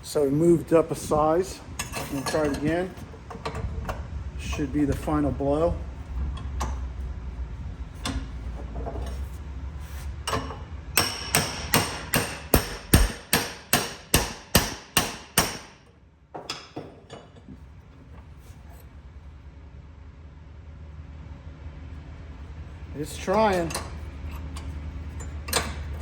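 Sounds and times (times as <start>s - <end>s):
hammer blows on metal: 11.0s - 15.8s.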